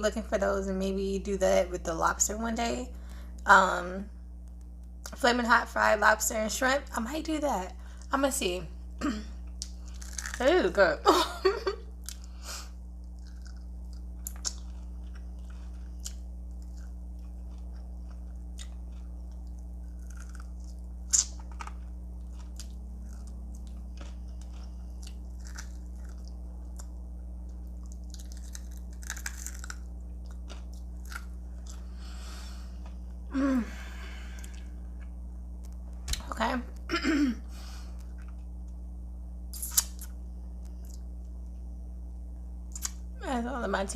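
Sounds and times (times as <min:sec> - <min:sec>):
low electrical hum: 0:00.0 - 0:43.9
chewing and crunching food: 0:09.4 - 0:10.6, 0:11.9 - 0:33.3, 0:34.3 - 0:36.3, 0:37.9 - 0:38.8, 0:39.6 - 0:41.1, 0:42.7 - 0:43.0.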